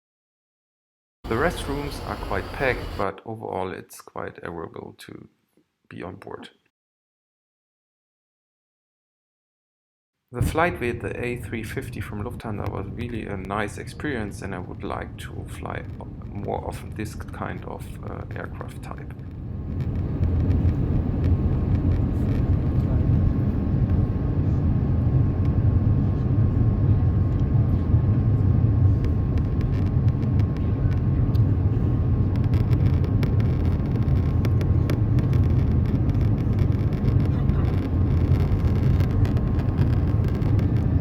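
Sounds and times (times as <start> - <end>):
airliner cabin rumble: 1.2 - 3.0, 10.4 - 41.0.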